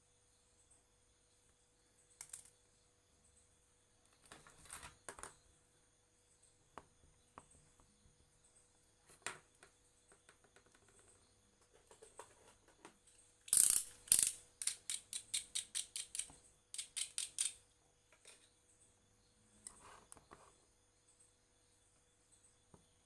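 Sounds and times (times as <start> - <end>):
loud rasping clicks: 13.5 - 17.6.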